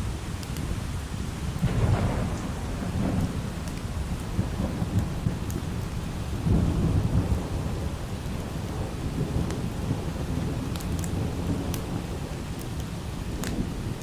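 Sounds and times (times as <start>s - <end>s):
light rain: 0.0s - 14.0s
thunder rumbling: 0.0s - 14.0s
faint sharp clicks: 10.7s - 11.8s, 12.6s - 13.6s.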